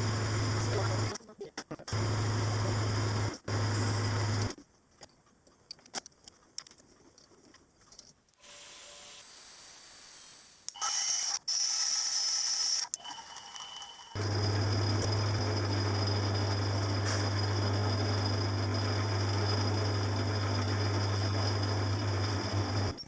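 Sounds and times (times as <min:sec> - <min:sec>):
high steady whine: 0:00.0 - 0:01.1, 0:02.0 - 0:04.5
machine tool motor humming: 0:02.0 - 0:04.5, 0:08.4 - 0:23.0
small clicks and handling: 0:05.0 - 0:08.4.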